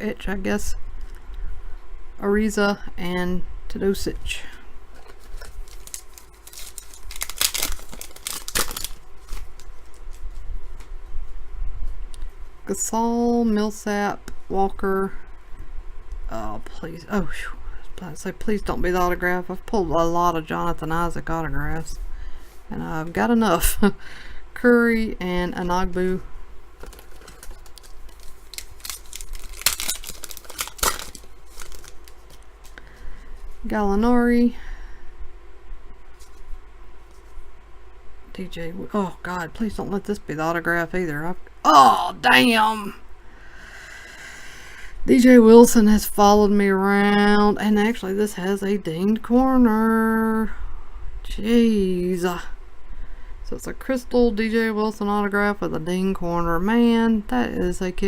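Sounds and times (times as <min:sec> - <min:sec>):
trading cards rustling and scraping: 0:04.9 - 0:10.9, 0:26.8 - 0:33.5, 0:36.1 - 0:37.4.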